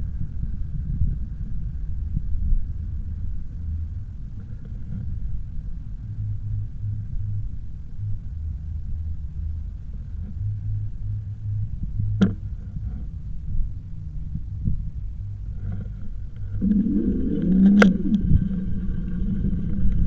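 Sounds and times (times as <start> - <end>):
e-bike rumble: 0.0 - 20.0
wind buffeting microphone: 11.7 - 20.0.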